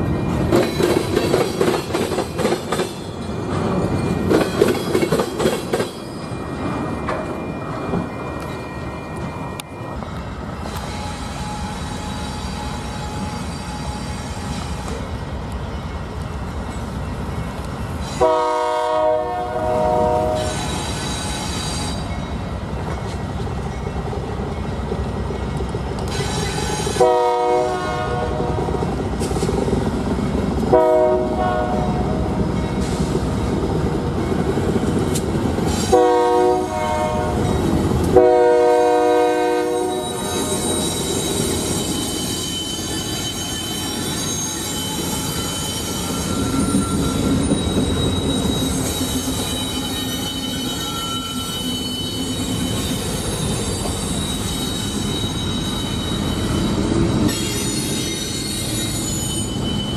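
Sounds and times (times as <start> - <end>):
train rumbling: 0.0 - 59.9
high wheel squeal: 2.8 - 18.6, 19.6 - 24.8, 25.4 - 28.2, 38.8 - 59.9
locomotive horn blasts: 18.2 - 20.5, 27.0 - 28.8, 30.7 - 32.1, 35.9 - 37.5, 38.1 - 40.6.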